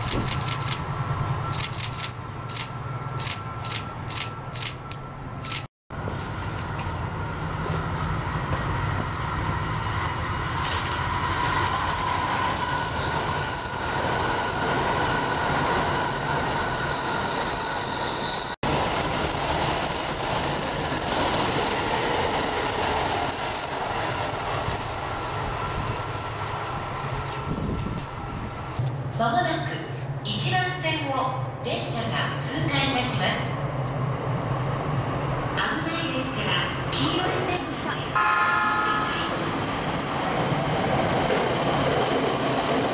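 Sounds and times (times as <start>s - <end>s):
electric train rumbling on rails: 0.0s - 42.9s
wheel squeal: 8.9s - 18.6s.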